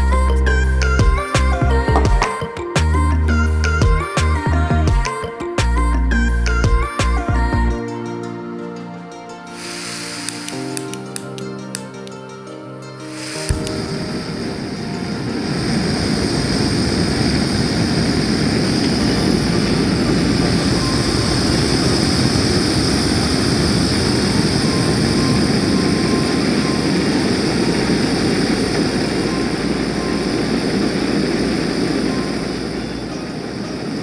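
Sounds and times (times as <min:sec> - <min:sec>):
gas camping stove burning: 0:13.3 - 0:34.0.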